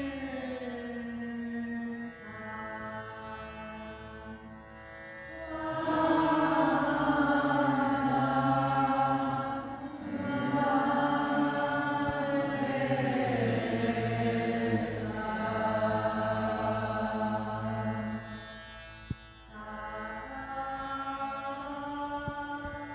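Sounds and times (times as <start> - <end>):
chanting: 5.3 - 18.4
low drone: 5.4 - 18.4.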